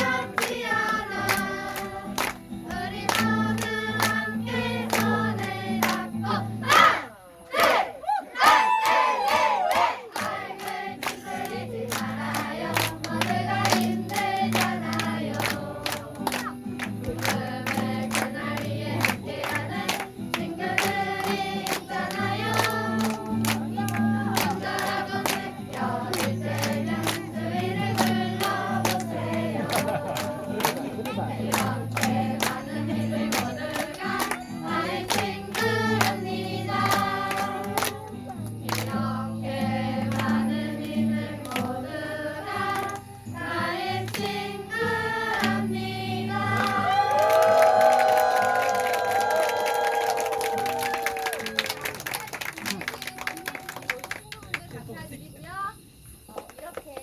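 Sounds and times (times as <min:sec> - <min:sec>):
group singing in chorus: 0:00.0 - 0:49.4.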